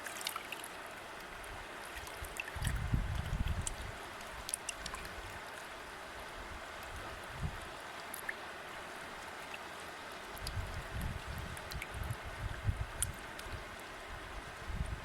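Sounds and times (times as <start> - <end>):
river flowing over rocks: 0.0 - 2.6, 3.8 - 10.4.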